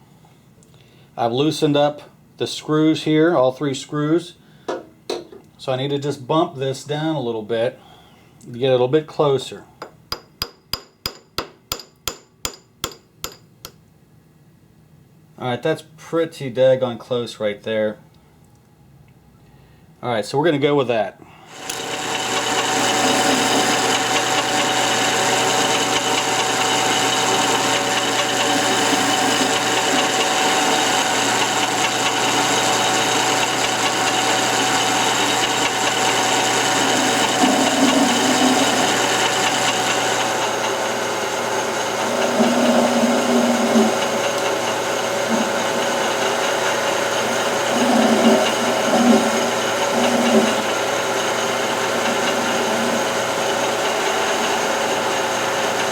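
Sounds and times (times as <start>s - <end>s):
metal lathe whining: 21.5s - 55.9s
rough metal cutting noise: 21.5s - 55.9s.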